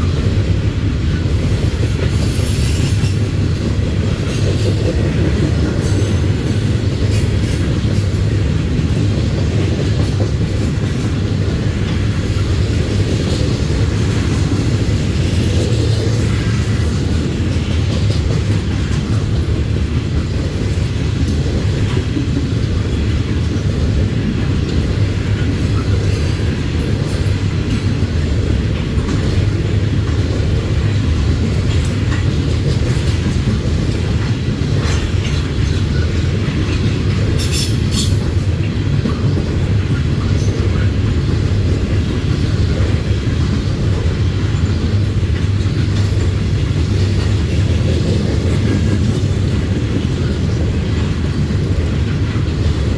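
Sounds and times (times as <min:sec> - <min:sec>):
train wheels rumbling on rail: 0:00.0 - 0:52.9.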